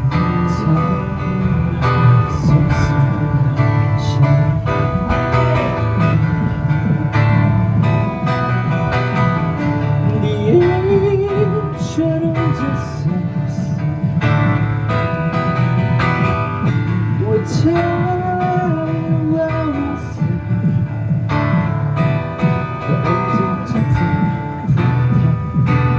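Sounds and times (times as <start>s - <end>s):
gliding melody line: 0.0s - 16.6s
bass: 0.0s - 25.9s
cajon beat: 0.0s - 25.9s
keyboard: 0.0s - 25.9s
strummed acoustic guitar: 0.0s - 25.9s.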